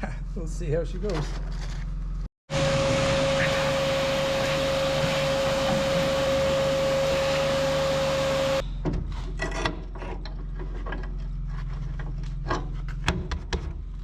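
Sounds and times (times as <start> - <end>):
machine whining over hiss: 2.5 - 8.6.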